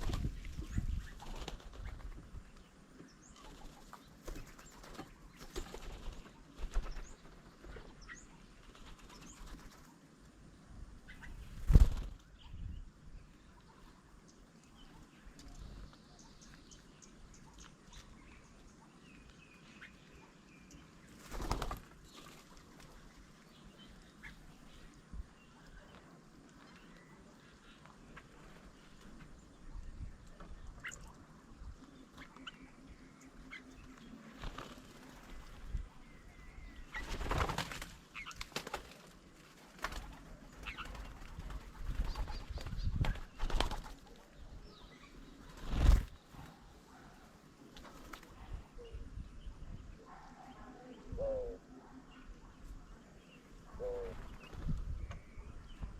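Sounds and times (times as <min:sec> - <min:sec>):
bird wings flapping: 0:00.0 - 0:02.3, 0:03.4 - 0:10.0, 0:11.4 - 0:12.3, 0:21.1 - 0:23.1, 0:34.3 - 0:35.6, 0:36.9 - 0:44.2, 0:45.4 - 0:46.4, 0:47.7 - 0:48.4
faint bird chirps: 0:00.0 - 0:55.9.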